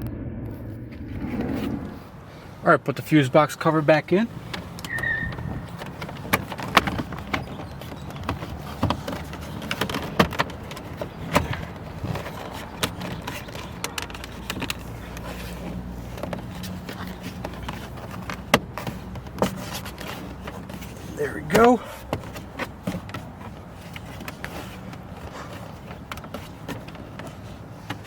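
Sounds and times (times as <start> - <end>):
low steady hum: 0.0 - 6.1.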